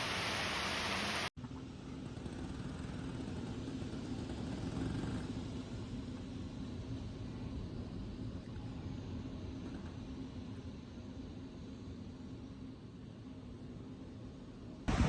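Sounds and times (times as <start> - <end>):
loud even hiss: 0.0 - 1.3
faint hum: 0.0 - 15.0
steady low rumble: 5.4 - 15.0.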